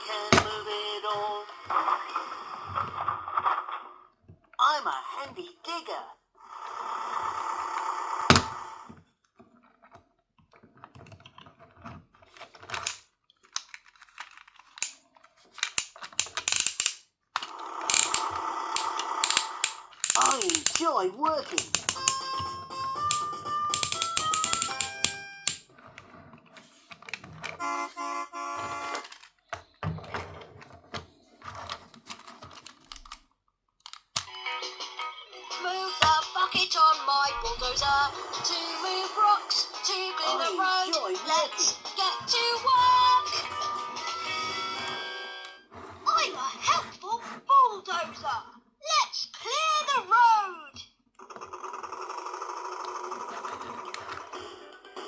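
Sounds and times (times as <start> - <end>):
plastic toy clicks and rattles: 12.4 - 22.3, 23.1 - 25.6, 33.8 - 34.3.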